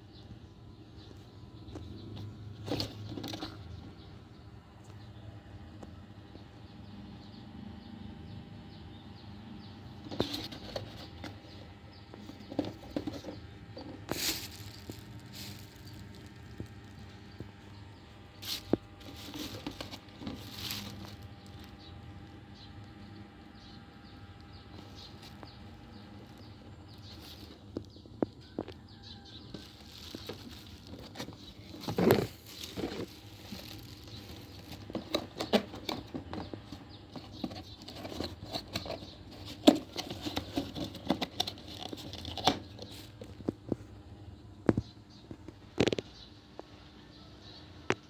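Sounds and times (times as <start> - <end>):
ceiling fan motor hum: 0.0 - 45.7
rustling: 10.0 - 22.4, 24.6 - 43.4.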